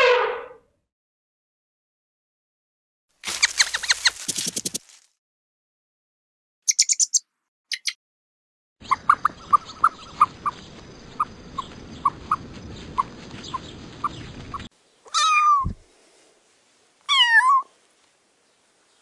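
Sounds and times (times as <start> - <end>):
steady outdoor hiss: 8.8 - 19.0
kitten meowing: 15.1 - 15.8, 17.1 - 17.7.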